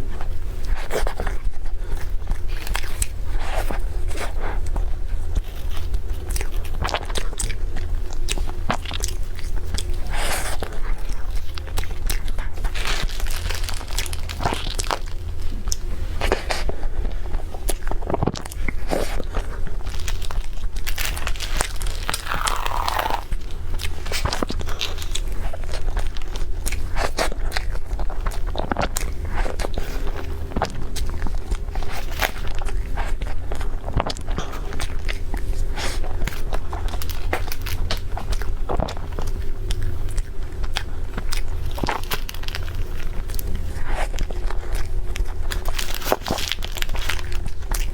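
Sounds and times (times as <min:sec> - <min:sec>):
low hum: 0:00.0 - 0:47.9
person chewing crunchy food: 0:00.0 - 0:47.9.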